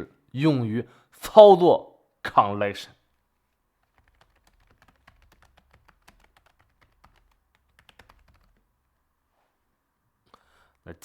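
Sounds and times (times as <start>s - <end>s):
faint keyboard typing: 3.0s - 9.0s.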